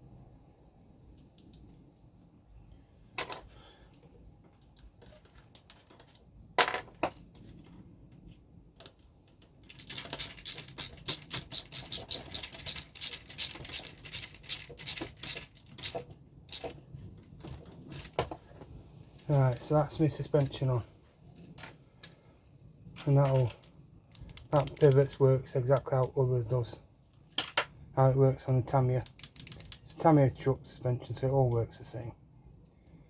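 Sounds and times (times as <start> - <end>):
small plastic and metal parts clicking: 8.1 - 16.8, 23.0 - 25.0, 29.0 - 30.0.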